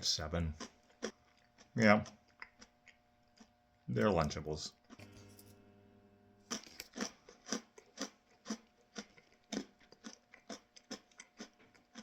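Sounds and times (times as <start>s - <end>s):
faint steady hum: 0.0s - 12.0s
crunchy chewing: 0.5s - 3.6s, 6.4s - 12.0s.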